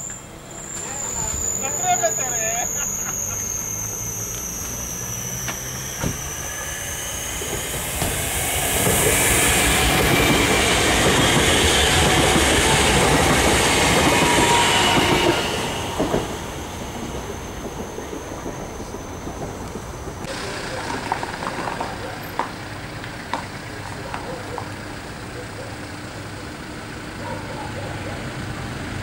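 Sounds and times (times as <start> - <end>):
crickets chirping: 0.0 - 20.3
train wheels rumbling on rails: 0.0 - 29.0.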